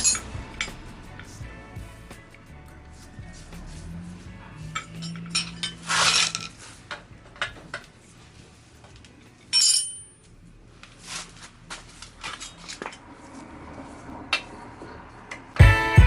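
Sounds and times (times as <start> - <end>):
ringing metallic clink: 0.0 - 0.8, 4.7 - 6.6, 9.4 - 10.4
metal tools clinking: 0.0 - 1.3, 4.6 - 7.9, 8.9 - 10.5, 12.0 - 13.2
scraping rush: 0.0 - 7.3.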